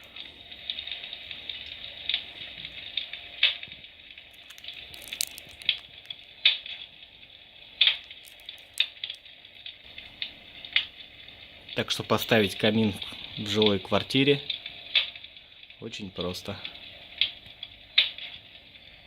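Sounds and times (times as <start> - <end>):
fire crackling sound effect: 0.7 - 11.4.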